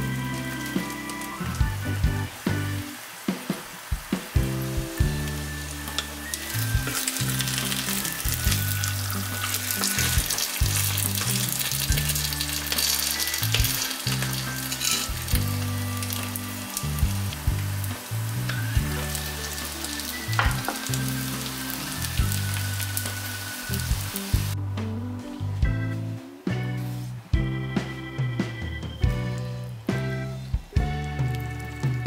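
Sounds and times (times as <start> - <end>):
potato pancake sizzling in oil: 0.0 - 24.6
spatula scraping and tapping pan: 12.7 - 15.5, 20.4 - 20.9.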